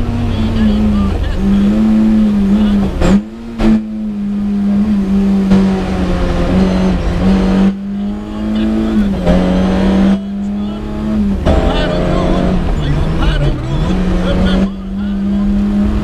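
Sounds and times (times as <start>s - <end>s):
rally car engine running hard: 0.0s - 16.0s.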